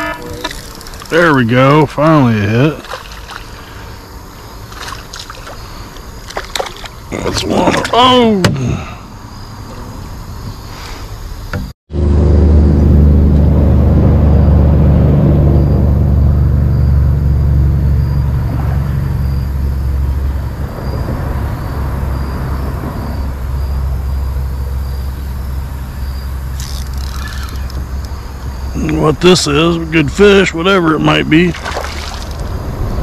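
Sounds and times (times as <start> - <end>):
loud low rumble: 11.9 - 26.5, 32.3 - 33.0.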